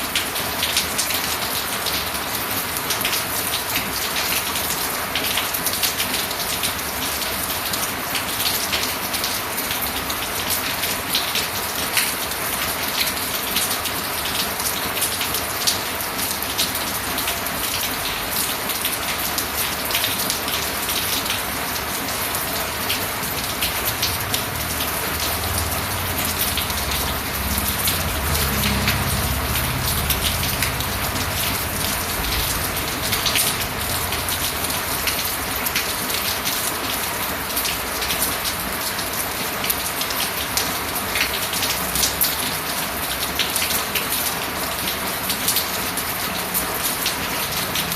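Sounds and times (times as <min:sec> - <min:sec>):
rain drops tapping: 0:00.0 - 0:47.9
low rumble: 0:23.9 - 0:35.5.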